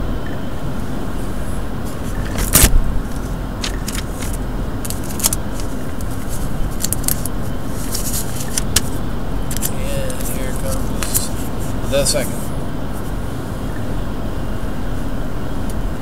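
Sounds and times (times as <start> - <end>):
running vehicle rumble: 0.0 - 16.0
handling clatter: 1.9 - 8.9.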